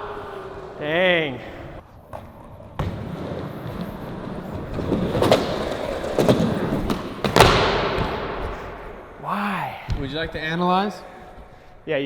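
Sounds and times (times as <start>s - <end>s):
skateboard wheels rolling on concrete: 0.0s - 8.8s.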